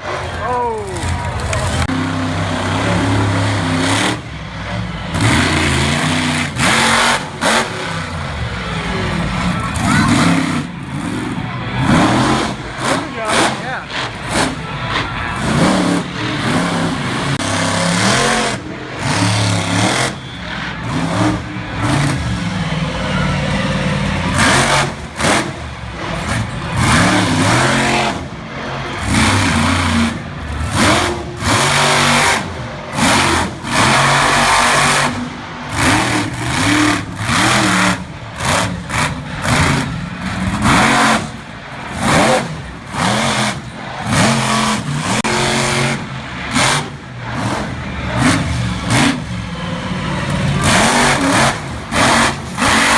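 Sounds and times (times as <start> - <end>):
truck engine revving hard: 0.0 - 52.9.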